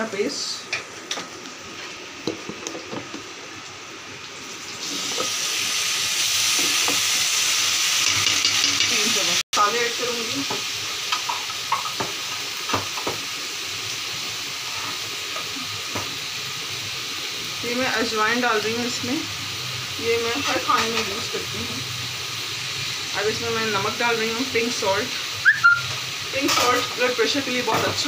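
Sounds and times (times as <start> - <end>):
paste sizzling in hot oil: 4.3 - 28.0
metal spoon clinking and scraping: 8.0 - 9.0.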